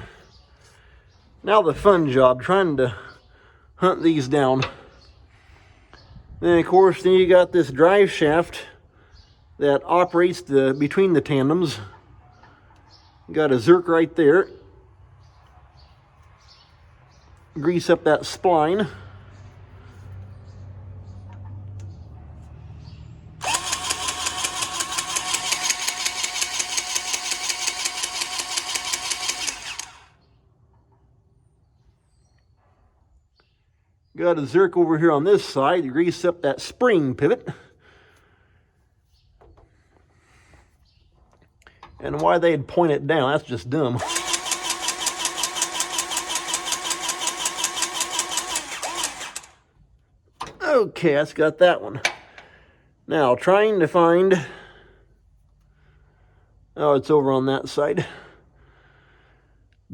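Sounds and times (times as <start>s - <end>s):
electric grease gun whirring: 23.4s - 30.2s, 44.0s - 49.7s.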